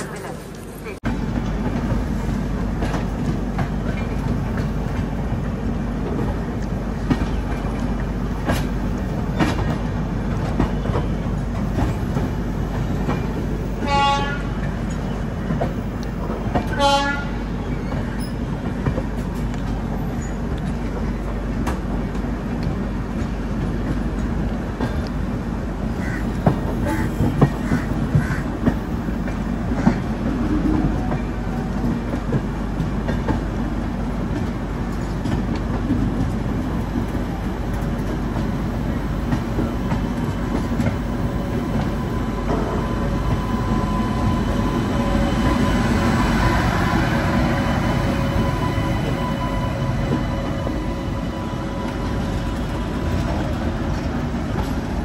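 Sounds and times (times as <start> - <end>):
train rumble: 0.0 - 55.0
train horn toots: 13.7 - 14.7, 16.6 - 17.5.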